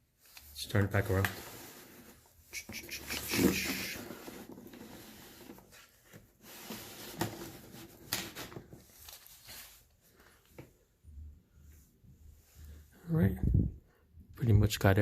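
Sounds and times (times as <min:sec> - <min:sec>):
soft brushing scrape: 0:00.3 - 0:08.1, 0:08.8 - 0:10.4.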